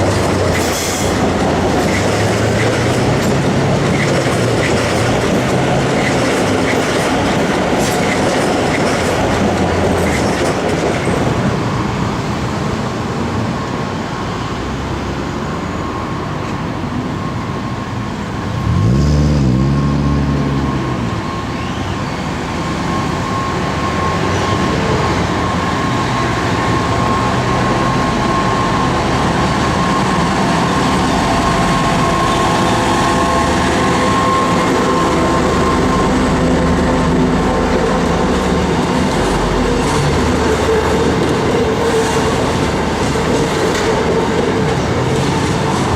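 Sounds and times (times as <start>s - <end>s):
train wheels rumbling on rail: 0.0s - 45.9s
steady high tone: 11.8s - 45.9s.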